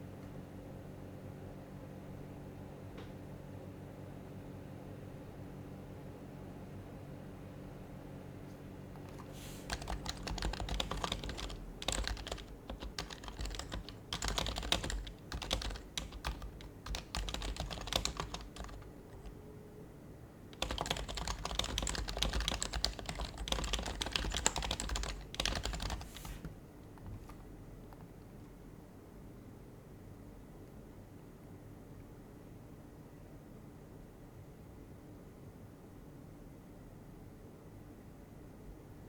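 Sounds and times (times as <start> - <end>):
quiet keyboard typing: 9.0 - 19.5, 20.5 - 28.6.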